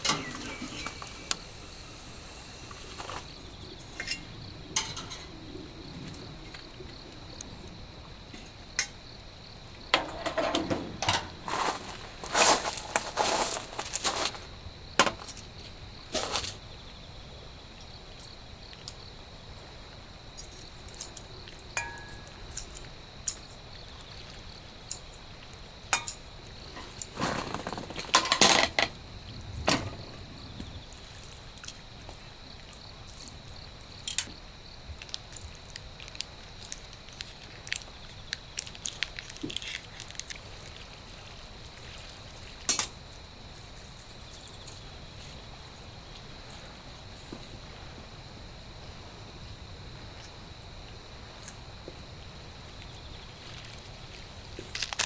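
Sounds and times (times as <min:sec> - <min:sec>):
light rain hiss: 0:00.0 - 0:10.4
dishes clinking and tapping: 0:21.8 - 0:22.3.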